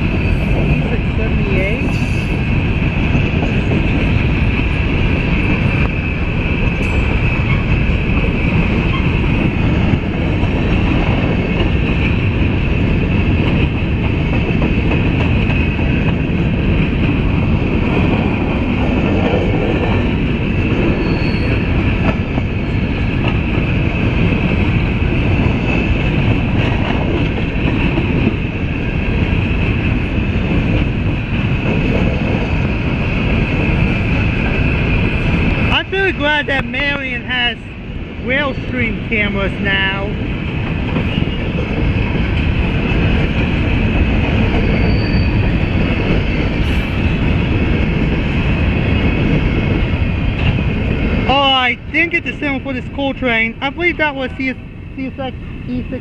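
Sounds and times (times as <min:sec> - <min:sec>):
train wheels rumbling on rail: 0:00.0 - 0:56.0
high wheel squeal: 0:20.9 - 0:21.9, 0:44.4 - 0:47.5.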